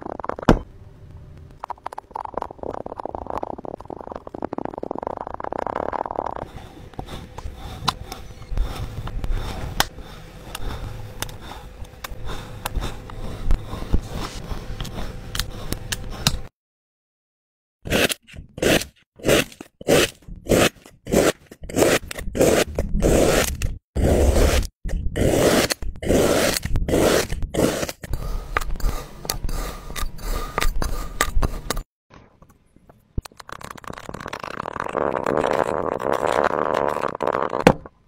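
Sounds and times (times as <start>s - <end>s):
faint crackling and clicks: 1.1s - 6.4s
scraping strokes: 6.4s - 16.5s.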